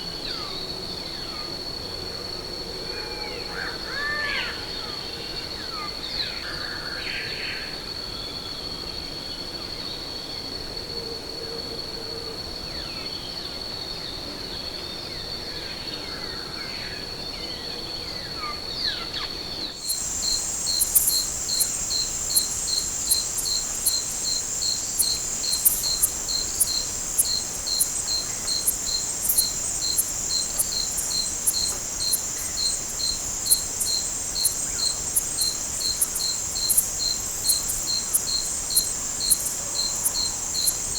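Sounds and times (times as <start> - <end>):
pulsing insect chorus: 19.7 - 40.9
high insect drone: 19.8 - 40.9
sharp ticks: 19.8 - 40.9.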